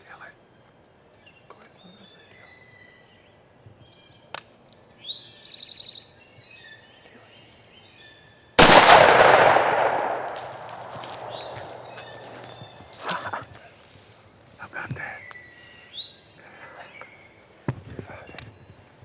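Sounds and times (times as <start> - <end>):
shotgun blast echoing: 8.6 - 12.6.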